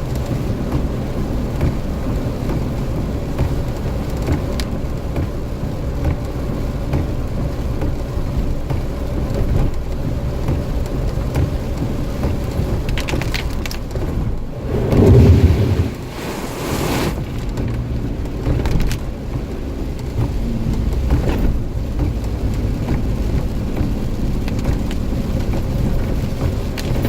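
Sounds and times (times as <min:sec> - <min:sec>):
low thunder rumble: 0:14.4 - 0:18.0
heavy rain hiss: 0:14.5 - 0:17.8.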